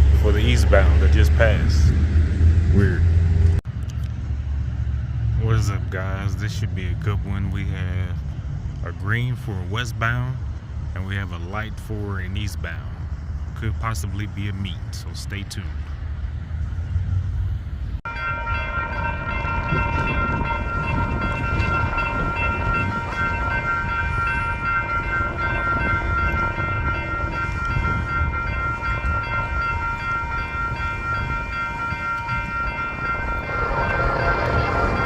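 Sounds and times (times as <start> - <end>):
diesel locomotive rumble: 0.0 - 35.0
locomotive horn: 18.1 - 35.0.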